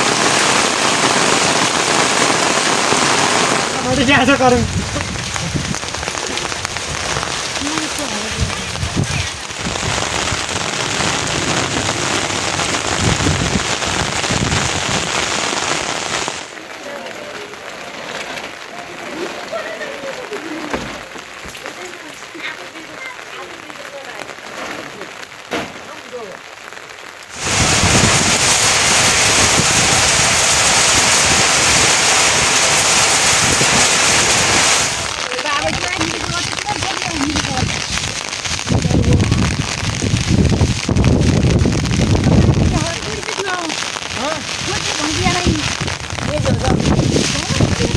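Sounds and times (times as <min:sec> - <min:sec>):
rain falling: 0:00.0 - 0:47.9
wind buffeting microphone: 0:03.5 - 0:16.2, 0:27.3 - 0:43.4, 0:44.0 - 0:47.9.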